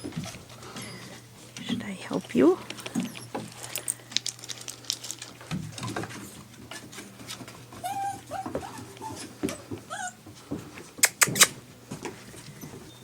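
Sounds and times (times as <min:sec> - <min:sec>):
small paws and claws clicking: 0:02.2 - 0:10.0, 0:10.6 - 0:12.2
puppies whimpering: 0:07.7 - 0:10.2.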